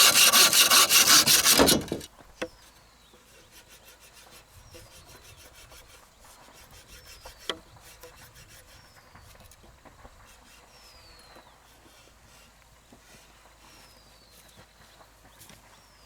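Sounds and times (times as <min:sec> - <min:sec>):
hand tool rasping wood: 0:00.0 - 0:02.1.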